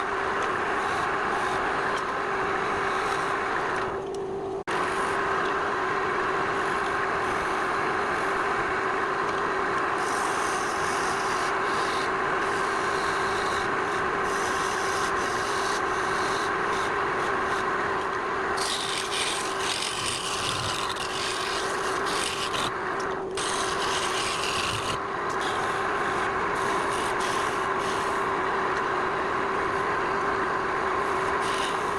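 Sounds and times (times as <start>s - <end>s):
tool scraping spinning wood: 0.0s - 4.0s, 10.0s - 28.9s, 30.9s - 31.9s
lathe humming: 0.0s - 31.9s.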